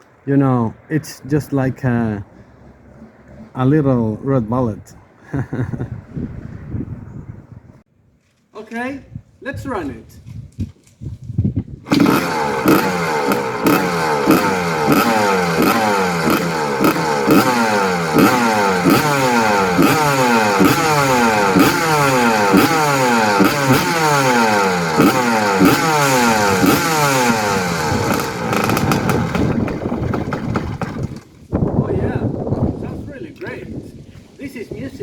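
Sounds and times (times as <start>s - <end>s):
two-stroke engine revving: 11.9s - 31.4s.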